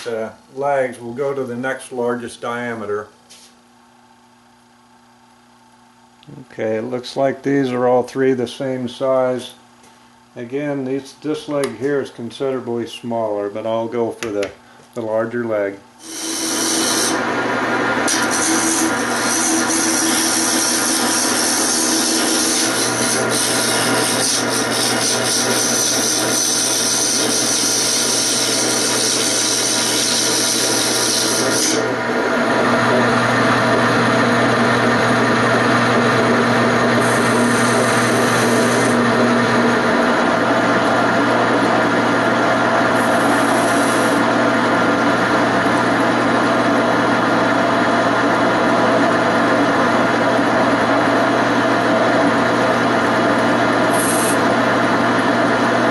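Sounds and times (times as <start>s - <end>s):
lathe tool scraping wood: 16.0s - 55.8s
lathe motor hum: 16.0s - 55.9s.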